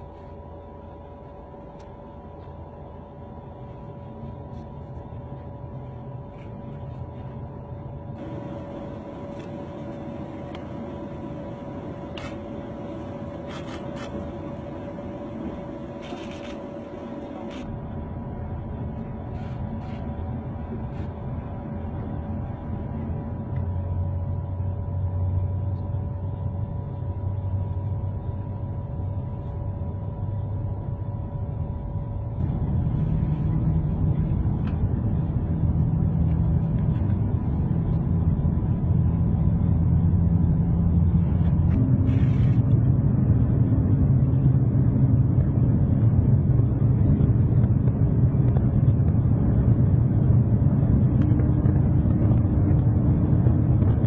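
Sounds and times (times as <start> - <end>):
train rumbling: 32.3 - 44.5.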